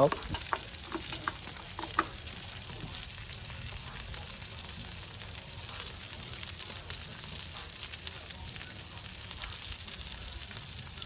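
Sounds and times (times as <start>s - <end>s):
burger patties sizzling: 0.0s - 11.0s.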